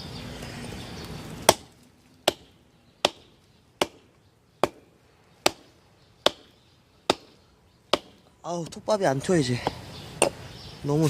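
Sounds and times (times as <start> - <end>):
hatchet chopping into log: 1.4 - 4.0, 4.6 - 5.7, 6.3 - 6.5, 7.1 - 8.2.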